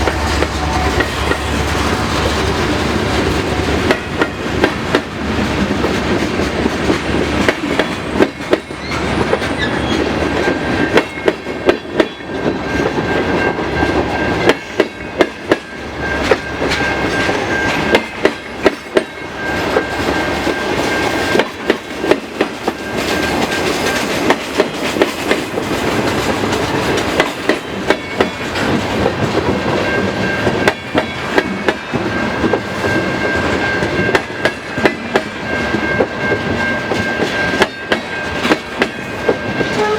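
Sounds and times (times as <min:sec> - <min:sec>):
train rumble: 0:00.0 - 0:39.9
train wheels clacking: 0:00.0 - 0:39.9
high wheel squeal: 0:08.7 - 0:10.9.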